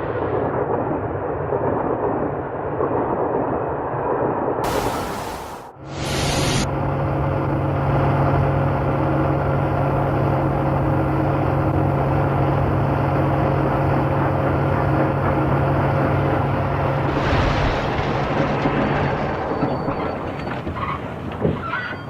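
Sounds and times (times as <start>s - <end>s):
vehicle engine humming: 4.6s - 17.2s.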